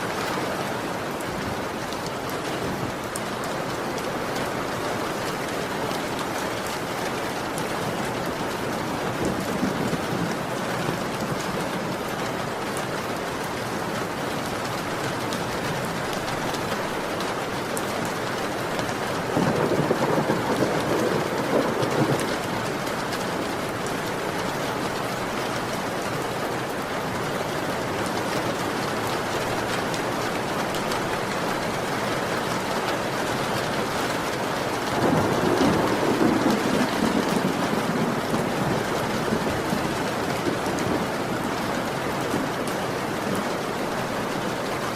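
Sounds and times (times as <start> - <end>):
heavy rain falling: 0.0 - 44.9
thunder rolling: 19.3 - 22.5, 34.9 - 41.3.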